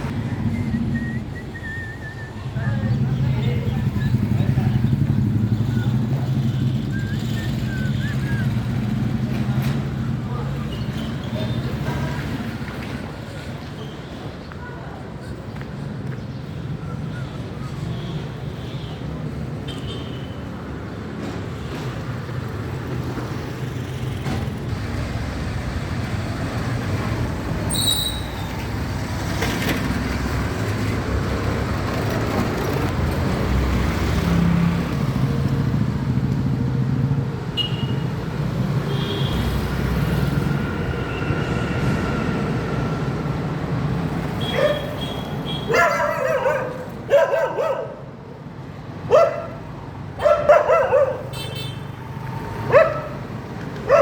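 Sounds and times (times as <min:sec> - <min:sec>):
road traffic rumble: 0:00.0 - 0:54.0
dog barking: 0:44.5 - 0:45.0, 0:45.6 - 0:48.1, 0:49.1 - 0:51.4, 0:52.6 - 0:53.2.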